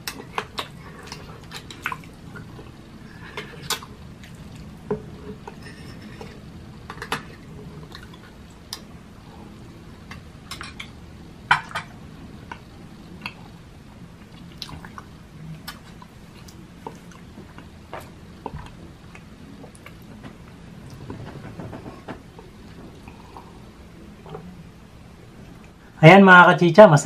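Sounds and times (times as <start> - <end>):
person chewing wetly: 14.2 - 20.1.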